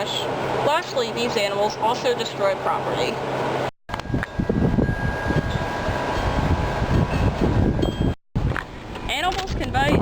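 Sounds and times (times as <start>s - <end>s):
wind buffeting microphone: 3.9s - 10.0s.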